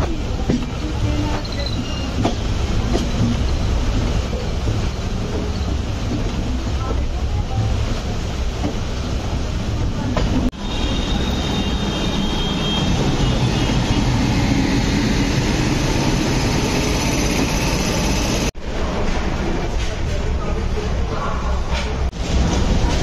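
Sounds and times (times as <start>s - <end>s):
train wheels clattering on rails: 0.0s - 9.0s
rushing air: 11.8s - 18.8s.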